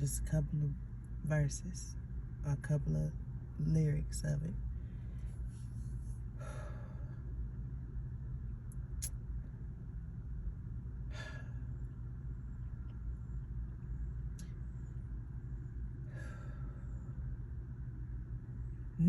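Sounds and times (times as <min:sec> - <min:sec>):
low outdoor rumble: 0:00.0 - 0:19.0
short breaths: 0:16.1 - 0:16.9.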